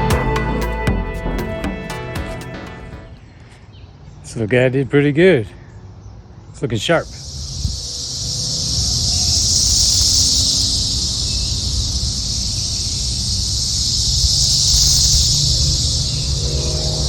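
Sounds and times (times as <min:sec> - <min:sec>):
cicada buzzing: 0:06.9 - 0:17.0
low rumble: 0:15.4 - 0:17.0.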